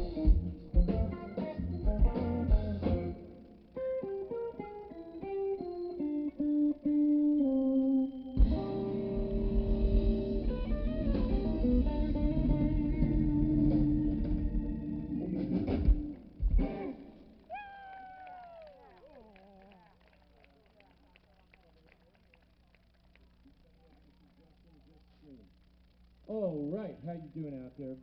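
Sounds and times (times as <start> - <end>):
live blues band: 0.0 - 17.2
electric guitar lick: 0.0 - 19.8.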